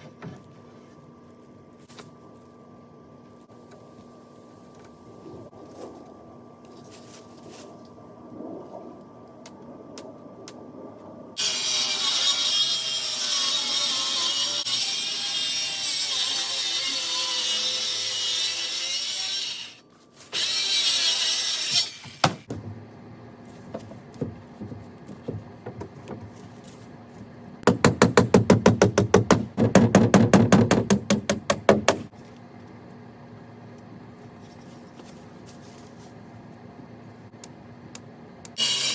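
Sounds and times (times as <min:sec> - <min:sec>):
power saw cutting: 0:11.4 - 0:19.8, 0:38.6 - 0:38.9.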